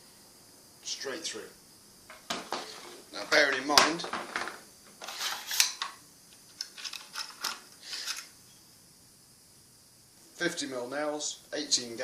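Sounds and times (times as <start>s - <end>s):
nailer handling scraping: 5.0s - 5.9s.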